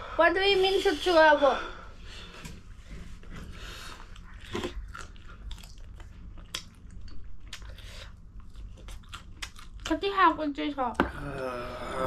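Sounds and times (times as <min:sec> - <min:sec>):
person chewing food: 0:03.3 - 0:09.9.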